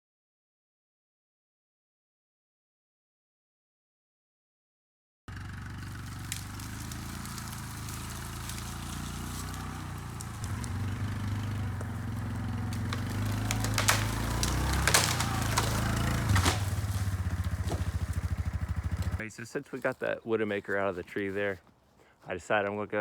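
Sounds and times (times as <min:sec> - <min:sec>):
motor vehicle engine running: 0:05.3 - 0:19.2
sharp cracking snaps: 0:05.8 - 0:19.2.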